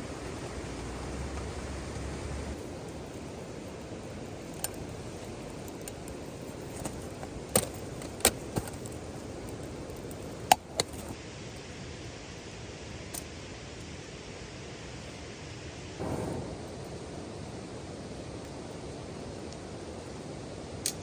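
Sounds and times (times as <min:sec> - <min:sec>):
rain hiss: 0:00.0 - 0:21.0
sharp clicks and pops: 0:04.2 - 0:11.2.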